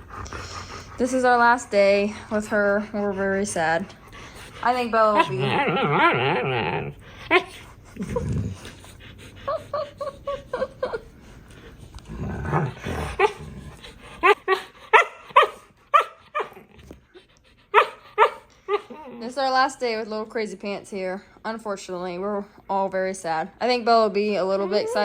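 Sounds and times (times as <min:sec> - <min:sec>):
dogs barking and yipping: 0:14.1 - 0:16.8, 0:17.7 - 0:19.4.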